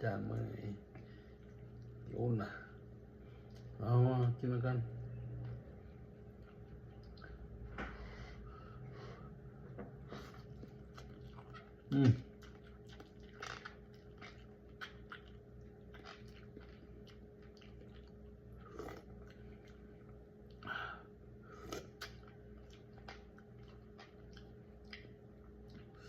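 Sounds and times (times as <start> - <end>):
low steady hum: 0.0 - 26.0
close chewing and mouth clicks: 5.4 - 7.6, 10.2 - 20.7, 21.6 - 26.0
bites and slurps: 10.2 - 19.8.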